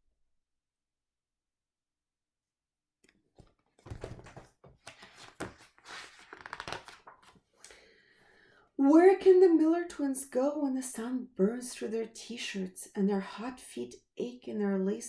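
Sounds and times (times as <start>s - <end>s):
book pages rustling: 3.4s - 7.6s.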